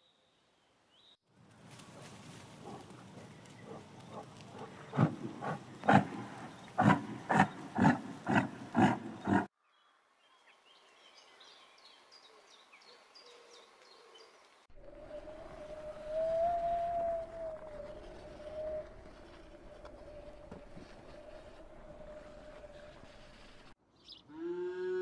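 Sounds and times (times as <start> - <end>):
large animal calling: 3.6 - 9.5, 14.8 - 23.5.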